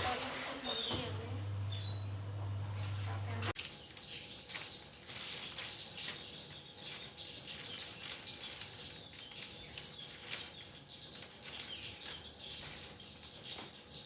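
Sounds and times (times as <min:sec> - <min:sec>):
bird chirping and twittering: 0:00.5 - 0:03.0, 0:05.3 - 0:13.6.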